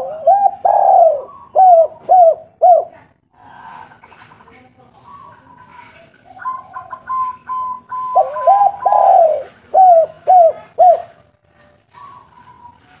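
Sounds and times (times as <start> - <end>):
dove cooing: 0.0 - 4.2, 5.0 - 11.2.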